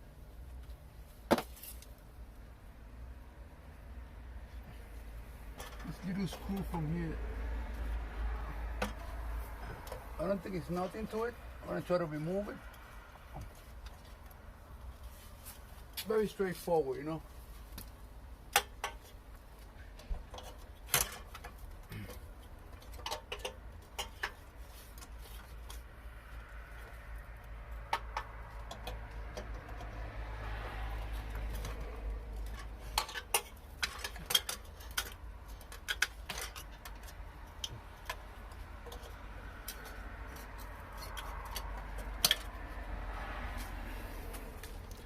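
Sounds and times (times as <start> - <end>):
hand tools tapping metal: 20.3 - 25.8, 32.4 - 42.6.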